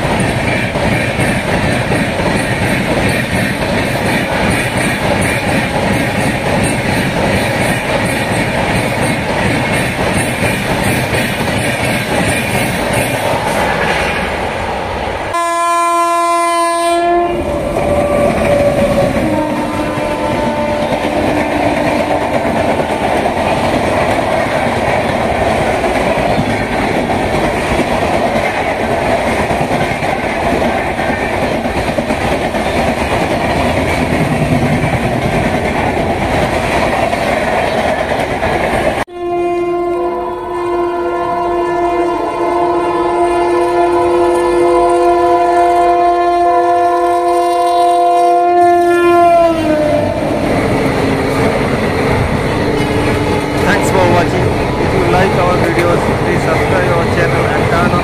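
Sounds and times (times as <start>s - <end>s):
train wheels clattering over rail joints: 0.0s - 14.4s, 17.8s - 39.0s
locomotive horn: 15.3s - 22.6s, 39.1s - 50.4s
long steady locomotive horn: 15.3s - 22.6s, 39.1s - 50.5s.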